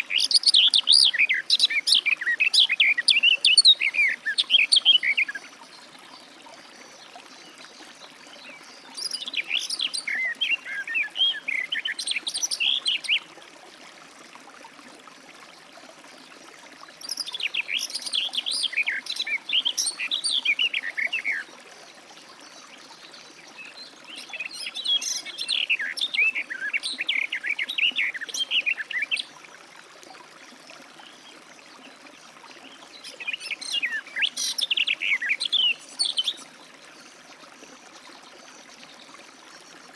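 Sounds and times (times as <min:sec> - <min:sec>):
bird warbling song: 0:00.0 - 0:05.7, 0:08.3 - 0:13.3, 0:17.0 - 0:21.5, 0:23.3 - 0:29.3, 0:32.6 - 0:37.1.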